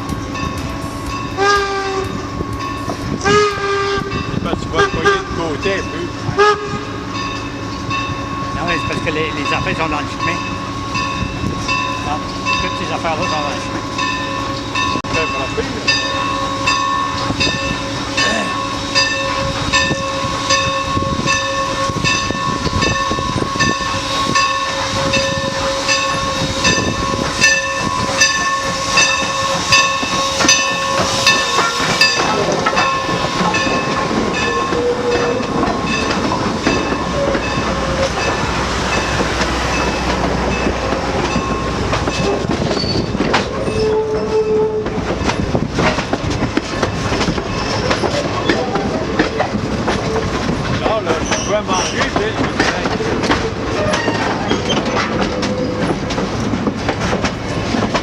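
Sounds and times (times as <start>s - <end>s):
train rumble: 0.0s - 58.0s.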